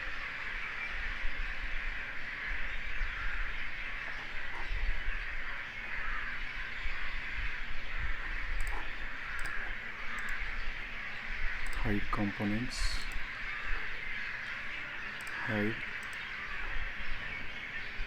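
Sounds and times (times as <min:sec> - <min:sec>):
faint clicks: 0:08.4 - 0:18.0.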